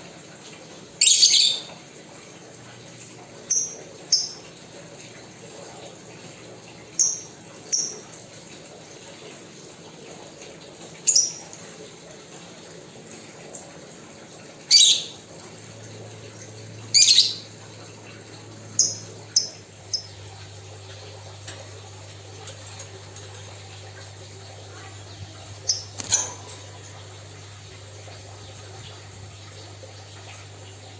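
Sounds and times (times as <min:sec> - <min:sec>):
pet birds calling: 0:01.0 - 0:01.8, 0:11.1 - 0:11.5, 0:14.7 - 0:15.2, 0:16.9 - 0:17.6, 0:18.7 - 0:20.3, 0:24.8 - 0:26.8.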